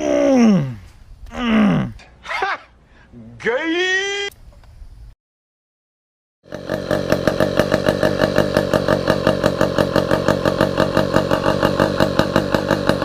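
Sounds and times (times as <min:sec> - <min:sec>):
engine idling: 0:06.5 - 0:13.0.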